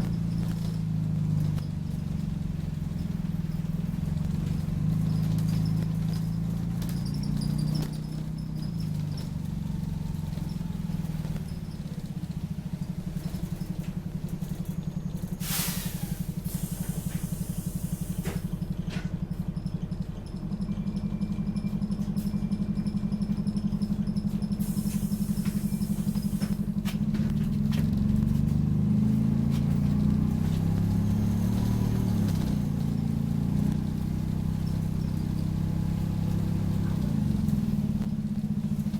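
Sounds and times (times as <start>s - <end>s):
bus engine throbbing: 0.0s - 38.9s.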